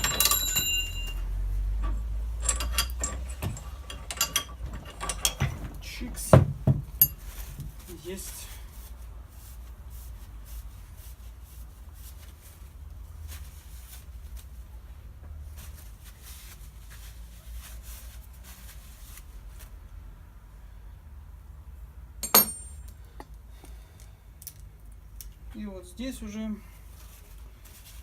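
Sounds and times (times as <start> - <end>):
small parts clicking and rubbing: 1.7 - 5.5.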